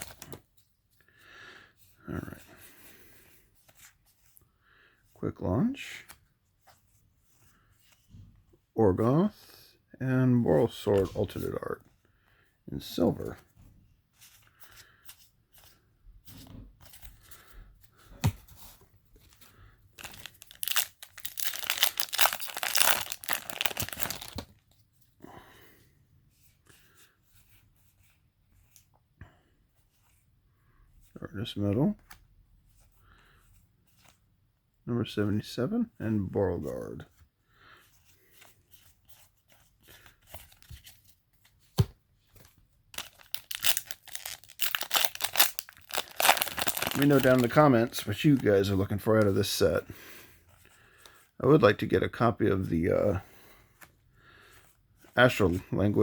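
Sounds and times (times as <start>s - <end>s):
foil wrapper tearing and crinkling: 20.0s - 24.5s, 43.0s - 47.7s.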